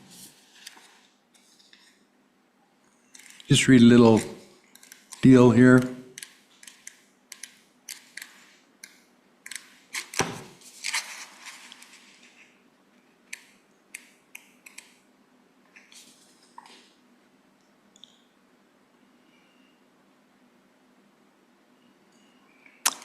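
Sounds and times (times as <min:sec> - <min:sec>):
paper rustling and clicks: 0:00.5 - 0:02.0, 0:09.5 - 0:12.3.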